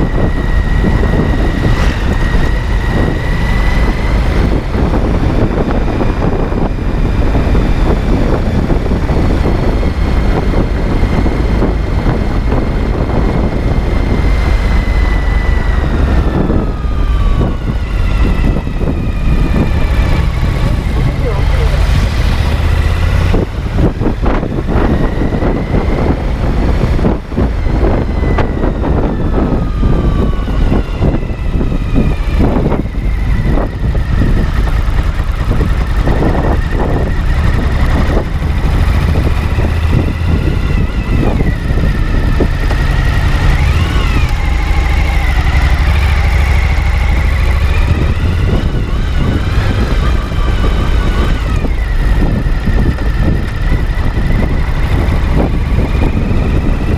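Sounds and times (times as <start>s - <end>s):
motorcycle engine idling: 32.9s - 56.9s.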